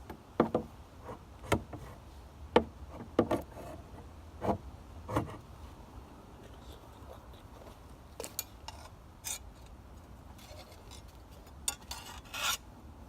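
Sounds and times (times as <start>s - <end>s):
hand file rasping on steel blade: 11.9s - 12.6s.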